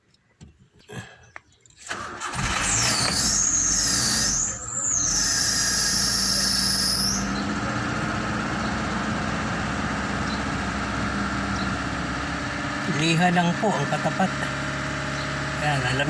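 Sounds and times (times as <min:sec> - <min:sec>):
vehicle engine starting and idling: 0:01.6 - 0:16.0
high wavering squeal: 0:02.4 - 0:07.5.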